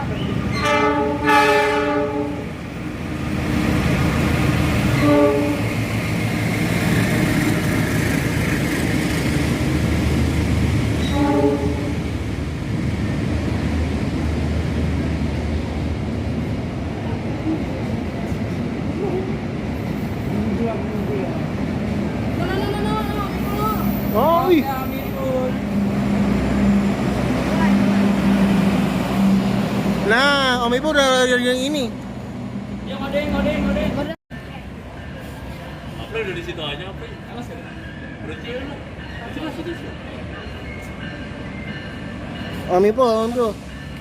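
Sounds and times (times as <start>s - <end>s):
train passing rumble: 0.0s - 44.0s
train horn blasts: 0.5s - 2.5s, 4.9s - 5.8s, 11.0s - 12.1s.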